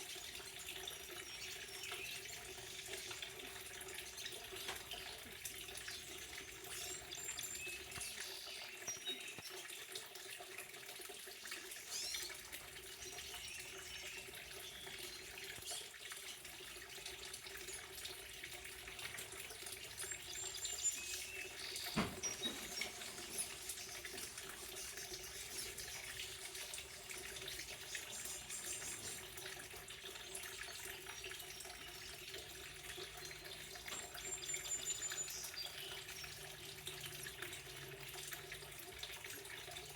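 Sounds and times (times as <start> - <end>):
water running: 0.0 - 39.9
bird chirps: 20.0 - 26.7, 33.0 - 36.4.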